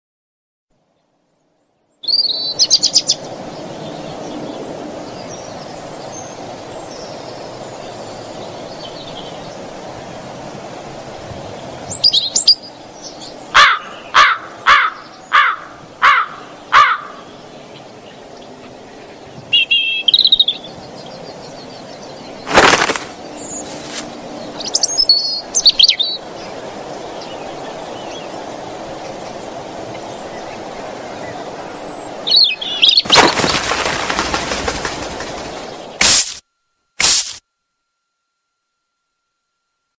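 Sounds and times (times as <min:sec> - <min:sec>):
birds chirping and calling: 0:11.9 - 0:36.0
loud falling bird calls: 0:13.6 - 0:17.4, 0:22.4 - 0:24.1, 0:32.3 - 0:36.4.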